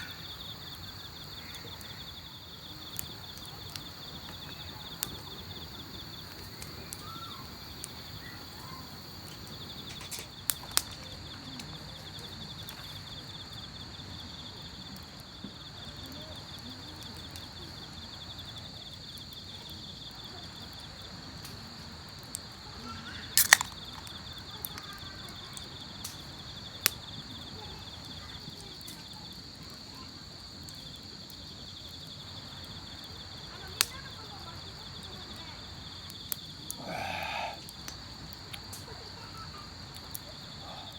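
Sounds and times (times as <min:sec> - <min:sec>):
insects trilling: 0:00.0 - 0:40.9
sharp snaps: 0:23.4 - 0:24.1, 0:36.3 - 0:38.9.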